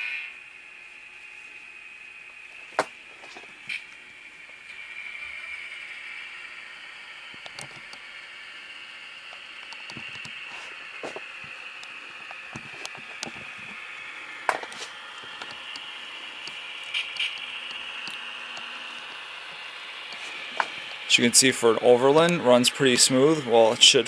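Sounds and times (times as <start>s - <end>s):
diesel engine sound from speaker: 9.3s - 24.0s
sharp clicks: 14.5s - 18.7s.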